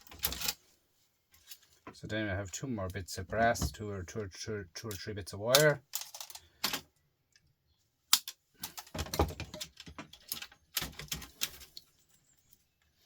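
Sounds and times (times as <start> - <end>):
metal parts clicking and rattling: 0.0 - 0.6, 1.3 - 1.9, 4.9 - 6.9, 8.1 - 12.8.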